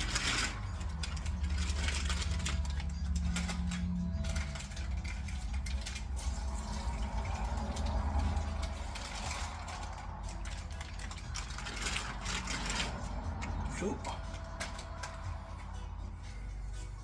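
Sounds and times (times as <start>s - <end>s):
water pouring into a pot: 4.7s - 12.9s.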